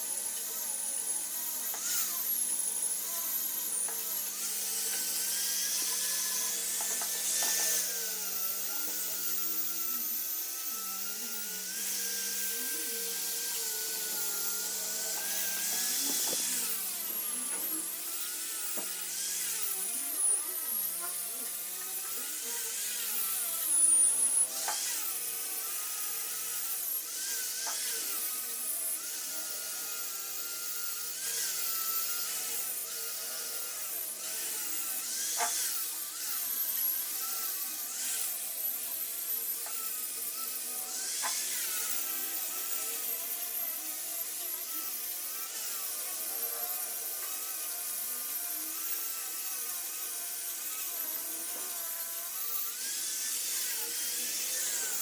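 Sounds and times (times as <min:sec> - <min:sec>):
rotary carving tool whining: 0:00.0 - 0:55.0
tool scraping wood: 0:35.4 - 0:35.6.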